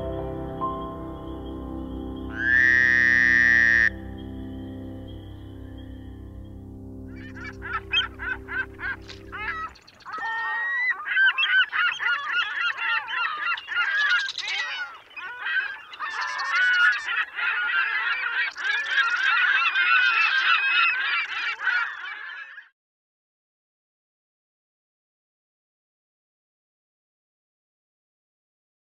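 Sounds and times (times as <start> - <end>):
flock of birds honking: 2.3 - 4.0, 7.1 - 22.7.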